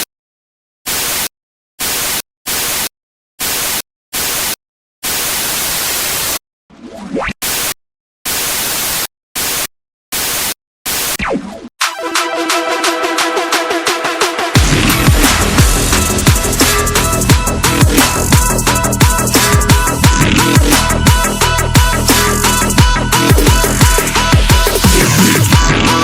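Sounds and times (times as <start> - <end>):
white noise static bursts: 3.4 - 6.4, 8.3 - 11.2.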